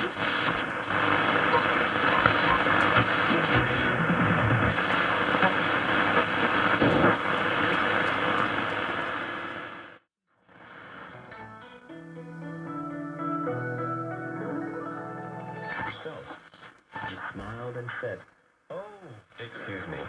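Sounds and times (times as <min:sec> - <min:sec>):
radio static rushing: 0:00.0 - 0:10.0
static crackles: 0:00.0 - 0:11.3, 0:15.8 - 0:20.0
faint radio whistles: 0:00.5 - 0:03.6.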